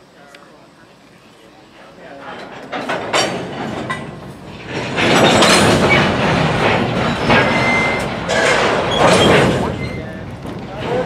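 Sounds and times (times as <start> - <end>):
train wheels clattering over rails: 2.0 - 11.0
high wheel squeal: 5.2 - 10.3.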